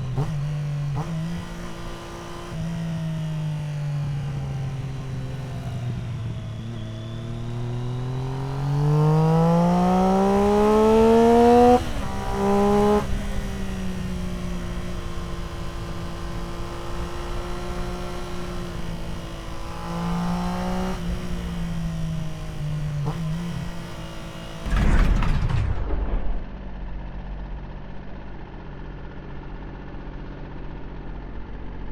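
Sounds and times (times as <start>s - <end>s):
motorcycle engine accelerating: 0.0s - 25.3s, 26.1s - 31.9s
loud low rumble: 24.6s - 31.0s.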